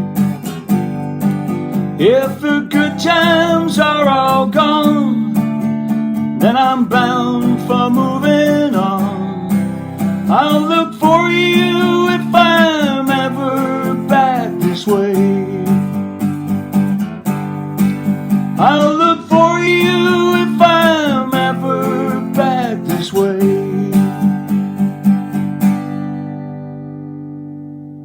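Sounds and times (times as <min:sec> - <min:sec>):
acoustic guitar strumming: 0:00.0 - 0:28.0
person singing: 0:02.0 - 0:05.6, 0:06.4 - 0:16.0, 0:18.6 - 0:24.4.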